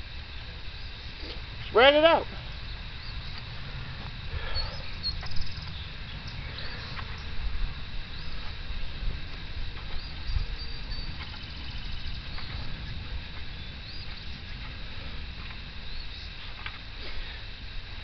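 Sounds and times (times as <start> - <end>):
birds chirping: 0.0 - 17.6
low rumble: 0.0 - 18.0
bird trill: 4.4 - 7.4, 9.9 - 14.6.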